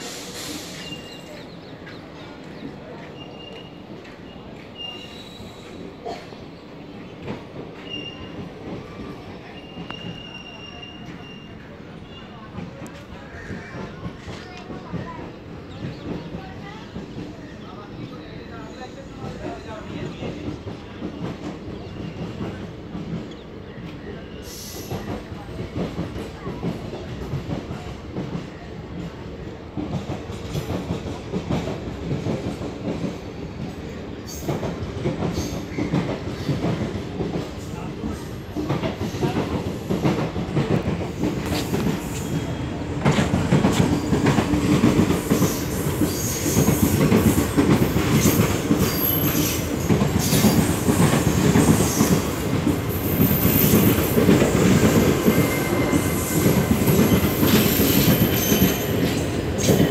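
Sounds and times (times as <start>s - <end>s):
high wheel squeals: 9.5s - 11.6s.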